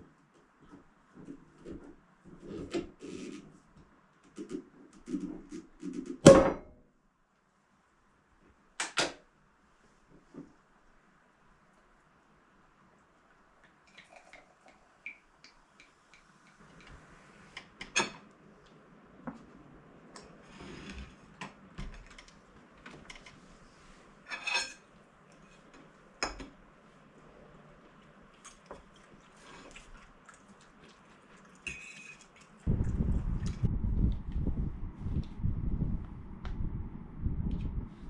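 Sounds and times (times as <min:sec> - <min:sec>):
dishes and cutlery clinking: 0:24.3 - 0:24.9, 0:31.6 - 0:32.4.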